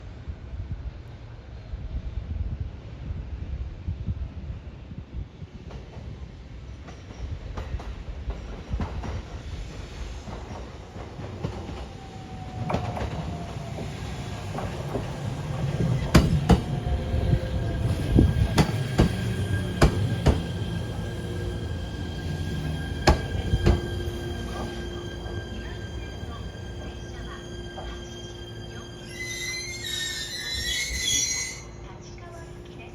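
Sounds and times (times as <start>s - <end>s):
falling whine of slowing train: 0.0s - 32.9s
train wheels clacking over rail joints: 14.5s - 17.0s, 18.1s - 21.0s, 22.2s - 25.4s
steady high tones: 15.8s - 32.9s.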